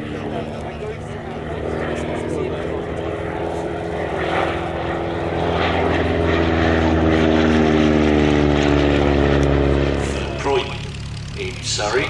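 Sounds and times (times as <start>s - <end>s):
propeller aircraft flying past: 0.0s - 12.0s.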